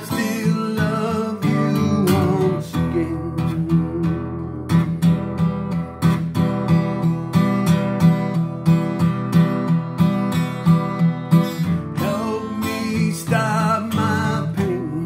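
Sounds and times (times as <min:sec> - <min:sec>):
person singing slow song: 0:00.0 - 0:05.3, 0:11.9 - 0:15.0
acoustic guitar strumming: 0:00.0 - 0:15.0.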